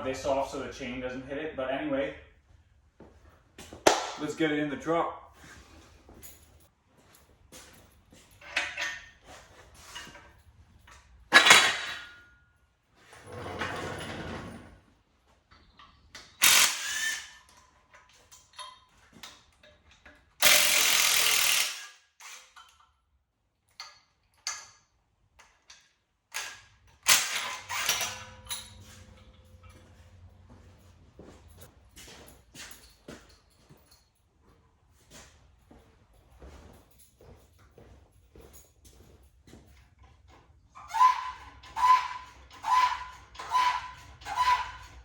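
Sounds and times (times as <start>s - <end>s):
metal clanks and knocks: 8.3s - 12.4s, 23.7s - 34.2s
power tool burst: 16.4s - 17.3s, 20.4s - 21.9s, 27.1s - 28.2s.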